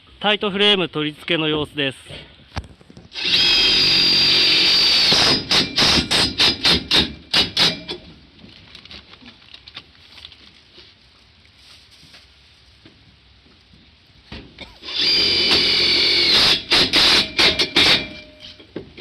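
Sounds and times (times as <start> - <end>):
power drill whining: 3.1 - 7.8, 14.6 - 18.6.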